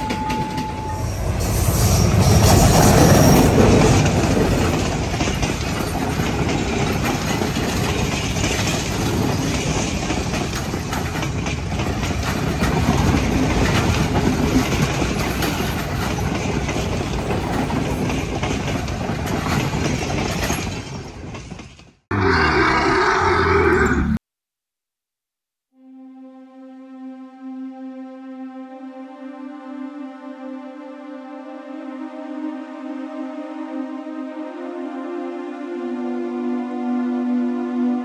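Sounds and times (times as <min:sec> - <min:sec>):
train carriages rolling past: 0:00.0 - 0:22.0.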